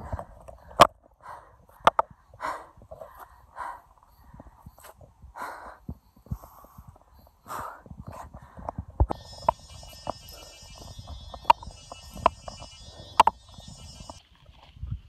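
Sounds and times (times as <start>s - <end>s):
woman breathing hard: 0.0s - 13.5s
sharp clicks: 9.0s - 14.2s.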